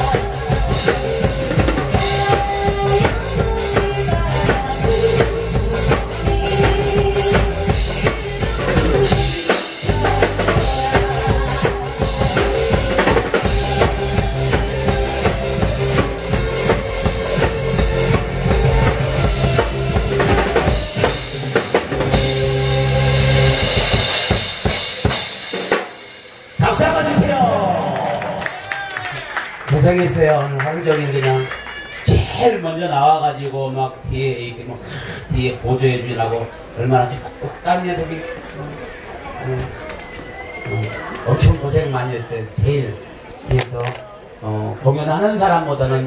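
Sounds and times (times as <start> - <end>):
held melody notes: 0.0 - 24.2
music with drum-kit beat: 0.0 - 27.3.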